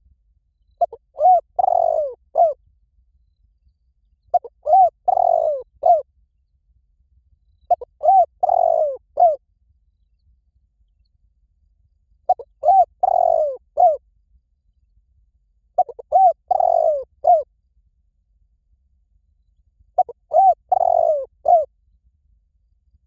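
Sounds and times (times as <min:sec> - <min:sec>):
dove cooing: 0:00.8 - 0:02.6, 0:04.3 - 0:06.0, 0:07.7 - 0:09.4, 0:12.3 - 0:14.0, 0:15.8 - 0:17.4, 0:20.0 - 0:21.7.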